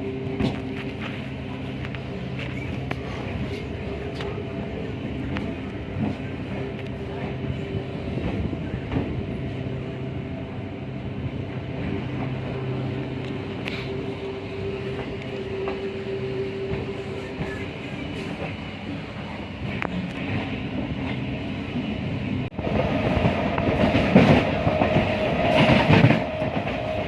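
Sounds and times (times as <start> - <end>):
humming tone: 0.0 - 18.5
train running on track: 0.0 - 27.0.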